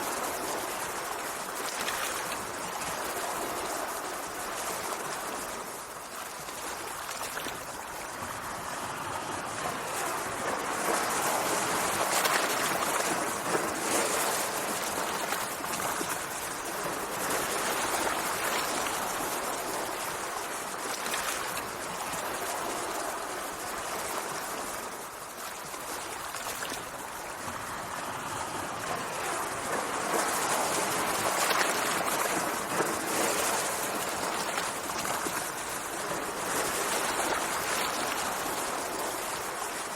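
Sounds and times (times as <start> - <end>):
sea waves washing: 0.0 - 39.9.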